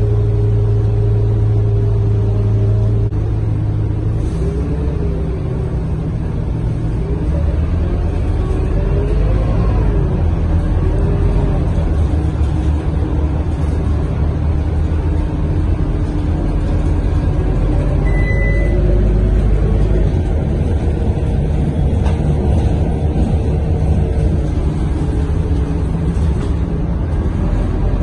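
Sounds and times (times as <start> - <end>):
bus diesel engine running: 0.0 - 28.0
low road rumble: 0.0 - 28.0
short high beep: 18.0 - 18.8.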